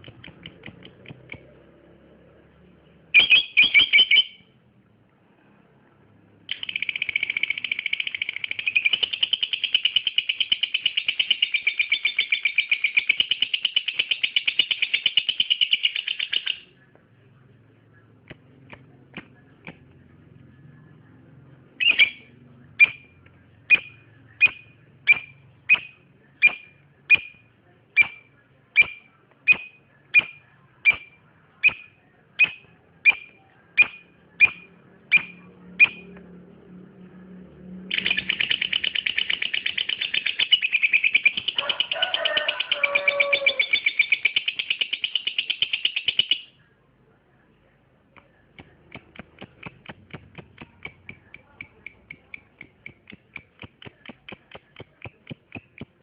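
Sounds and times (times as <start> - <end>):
lovebird chattering trill: 3.2 - 4.5, 6.5 - 16.7, 21.8 - 27.4, 28.0 - 36.0, 37.9 - 46.5
sharp bird chirps: 3.2 - 4.5, 6.5 - 16.7, 21.8 - 36.1, 37.9 - 41.6, 42.8 - 46.6.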